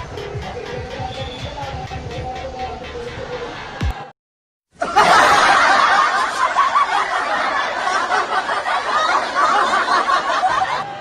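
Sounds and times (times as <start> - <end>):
background music: 0.0 - 4.1
crowd laughing and chattering: 0.0 - 4.1, 4.8 - 11.0.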